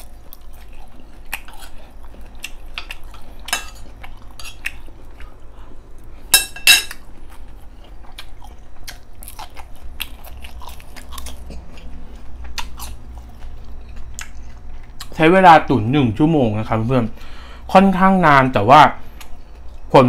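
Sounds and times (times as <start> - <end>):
person chewing ribs: 0.0 - 6.3, 6.9 - 15.2, 19.0 - 19.9.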